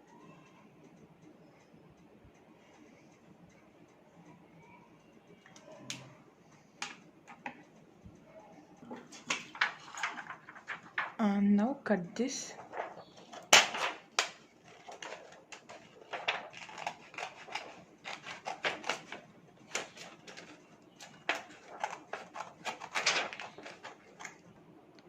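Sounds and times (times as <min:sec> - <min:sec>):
scissors cutting plastic sheet: 0:12.6 - 0:24.4.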